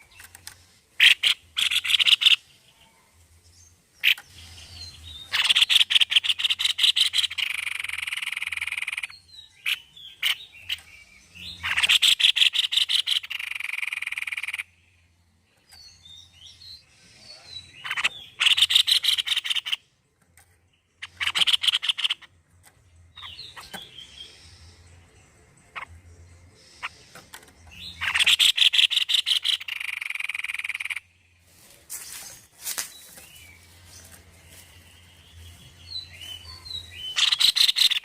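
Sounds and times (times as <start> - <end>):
bird chirps: 0.0 - 38.0
bird rattling calls: 0.1 - 2.4, 4.0 - 4.4, 5.3 - 10.9, 21.0 - 22.4, 26.8 - 31.0, 37.1 - 38.0.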